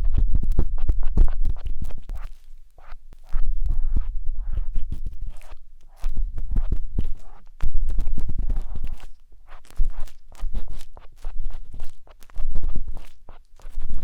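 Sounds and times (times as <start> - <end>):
scratching inside microphone ear: 0.0 - 14.0.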